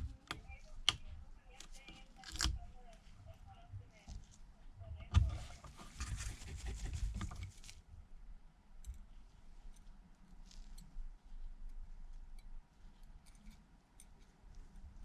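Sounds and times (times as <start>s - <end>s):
tools clicking and scratching: 11.6s - 15.0s.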